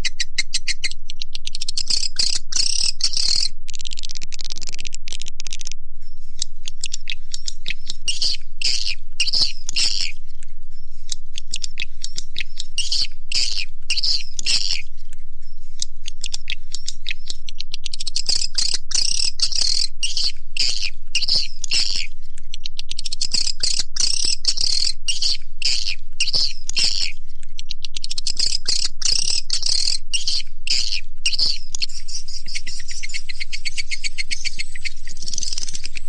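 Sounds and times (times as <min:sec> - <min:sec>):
swiftlets twittering: 0:06.7 - 0:14.8.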